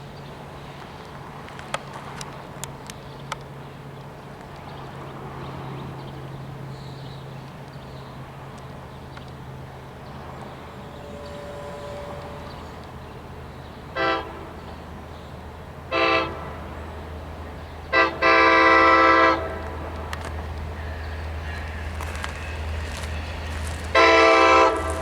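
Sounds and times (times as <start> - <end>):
train rumbling: 0.0 - 25.0
train horn blasts: 10.0 - 15.2, 15.8 - 16.8, 17.8 - 20.2, 20.8 - 25.0.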